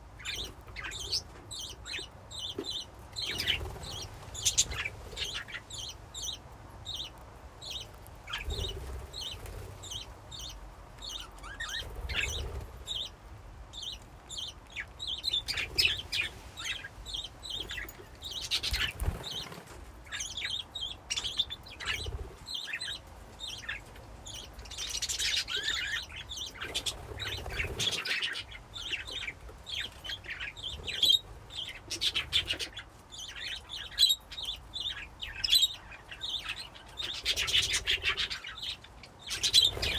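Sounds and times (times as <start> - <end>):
budgies chirping: 0.0 - 39.9
wings fluttering: 3.2 - 5.6, 8.2 - 10.2, 11.4 - 13.1, 17.6 - 20.5, 26.5 - 28.5, 39.3 - 39.9.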